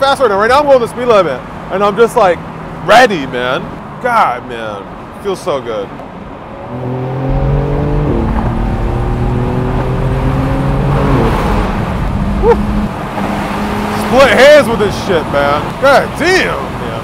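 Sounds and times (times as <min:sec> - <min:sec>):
car engine accelerating: 0:06.5 - 0:15.8.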